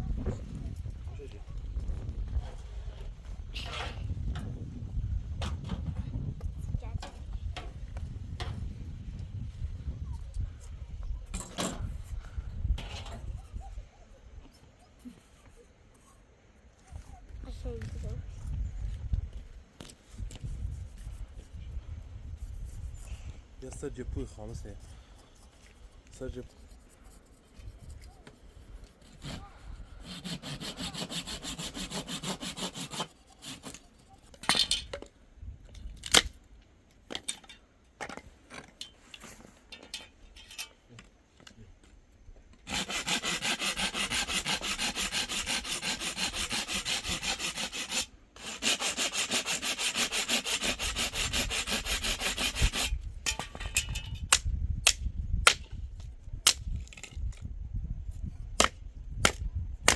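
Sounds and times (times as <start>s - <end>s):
fast rasping strokes: 24.8s - 34.4s, 42.7s - 53.0s.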